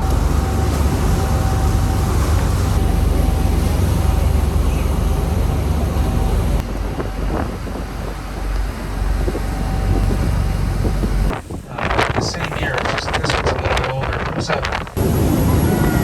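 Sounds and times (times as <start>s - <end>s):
boat engine rumbling: 0.0s - 16.0s
wind buffeting microphone: 0.0s - 16.0s.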